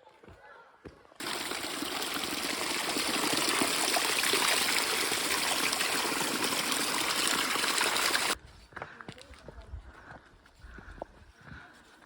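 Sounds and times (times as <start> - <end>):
small stream trickling: 1.2 - 8.4.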